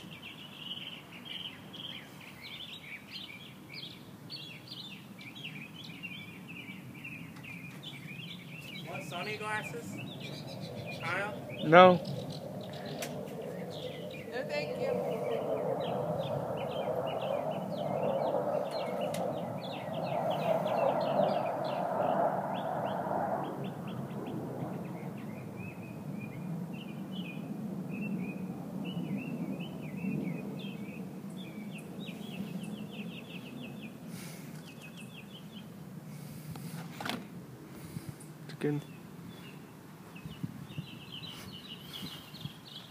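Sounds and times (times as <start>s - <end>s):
songbirds chirping: 0.0s - 42.9s
broad rushing noise: 7.8s - 42.5s
steady low hum: 8.2s - 27.8s.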